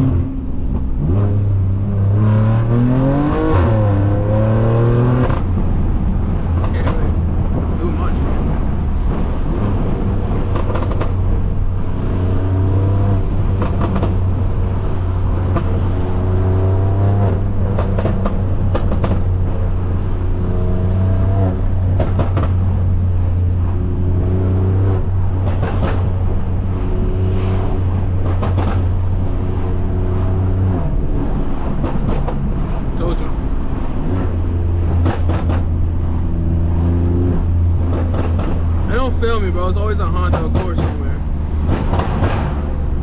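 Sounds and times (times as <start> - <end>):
car exhaust deep drone: 0.0 - 43.0
exhaust cracks: 5.0 - 12.4, 13.0 - 43.0.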